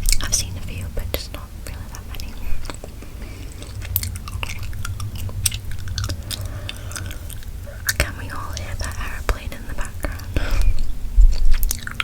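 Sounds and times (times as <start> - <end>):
steady low hum: 0.0 - 12.0
gum chewing mouth clicks: 1.9 - 9.1, 9.8 - 12.0.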